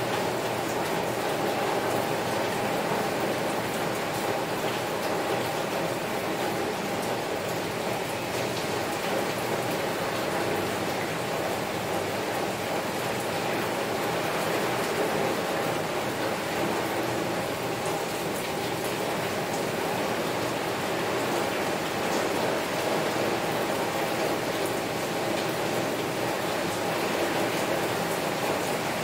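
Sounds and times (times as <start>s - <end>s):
heavy rain on a window: 0.0s - 29.0s.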